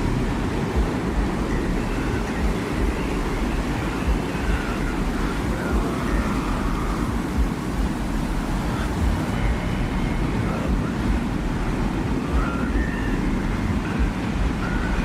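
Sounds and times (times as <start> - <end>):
low rumbling wind: 0.0 - 15.0
faint short whistling tones: 12.2 - 15.0.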